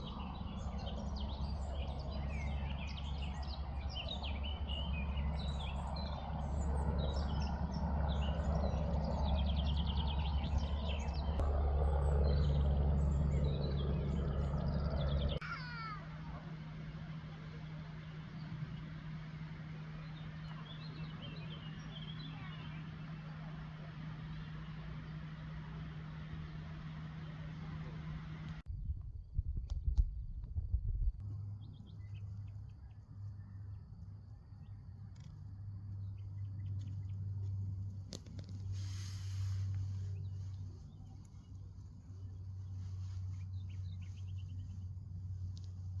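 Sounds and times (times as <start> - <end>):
songbirds chirping: 0.0 - 28.6, 31.2 - 46.0
low hum: 0.0 - 46.0
faint bird chirps: 38.4 - 46.0.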